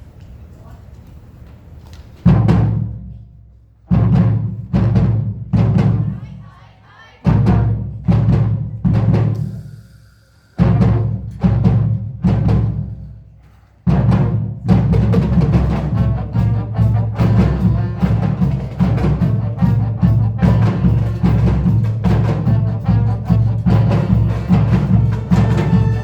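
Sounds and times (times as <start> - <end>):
driving rhythmic drumming: 2.2 - 3.1, 3.9 - 6.4, 7.2 - 9.7, 10.6 - 13.1, 13.9 - 26.0
marching band playing: 2.2 - 3.1, 3.8 - 6.2, 7.2 - 9.5, 10.6 - 13.2, 13.8 - 26.0.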